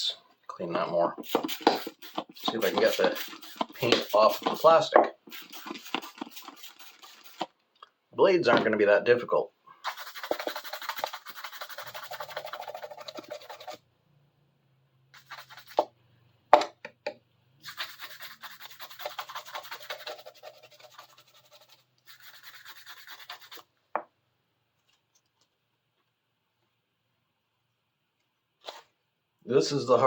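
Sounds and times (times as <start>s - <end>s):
scrubbing strokes on saw: 1.3s - 7.5s, 9.8s - 13.8s.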